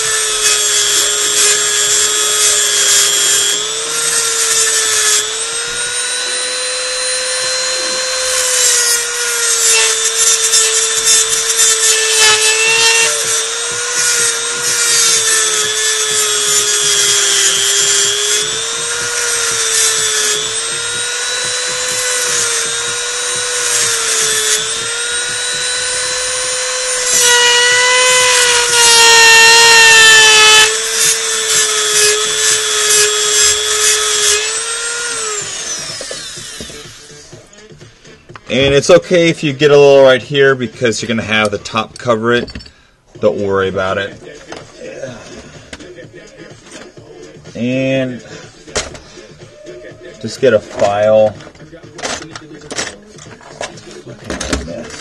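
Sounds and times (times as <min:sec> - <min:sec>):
rotary tool motor whine: 0:00.0 - 0:37.5
cutting wheel grinding metal: 0:00.0 - 0:37.7.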